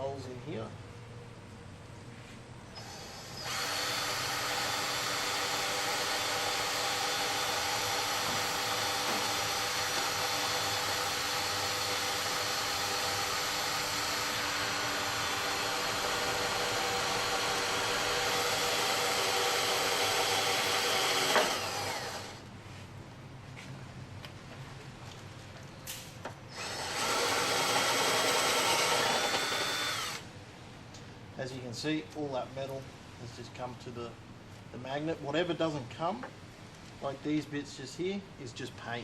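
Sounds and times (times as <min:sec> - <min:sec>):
electric drill through sheet metal: 0:02.8 - 0:22.4, 0:26.5 - 0:30.2.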